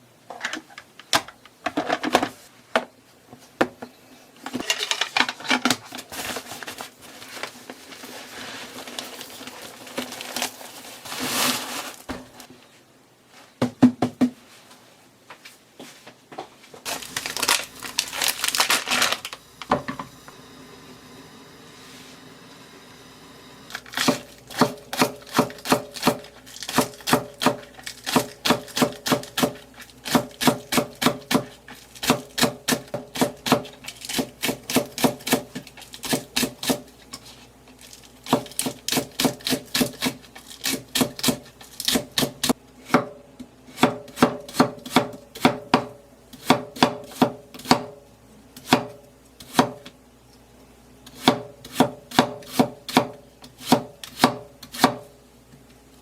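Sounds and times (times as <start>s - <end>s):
knife chopping on cutting board: 24.0s - 36.8s, 38.3s - 48.0s, 48.6s - 49.9s, 51.1s - 55.0s.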